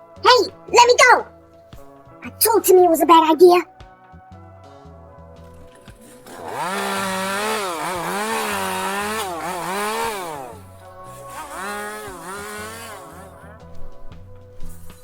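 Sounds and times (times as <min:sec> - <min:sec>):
background music: 0:00.0 - 0:15.0
chainsaw engine revving: 0:05.5 - 0:15.0.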